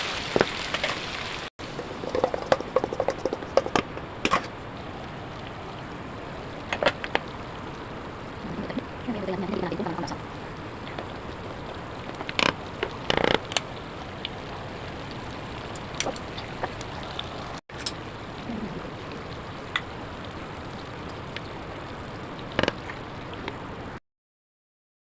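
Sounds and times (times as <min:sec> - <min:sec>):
food sizzling in a pan: 0:00.0 - 0:02.7.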